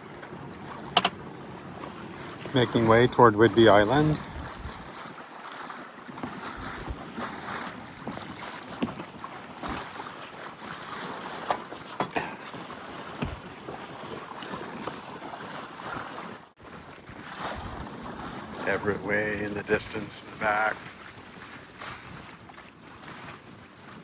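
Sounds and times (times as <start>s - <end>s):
small waves slapping: 0.0s - 24.0s
water rushing along boat hull: 0.0s - 24.0s
wind on microphone: 4.0s - 4.9s, 6.6s - 7.2s, 17.3s - 18.7s.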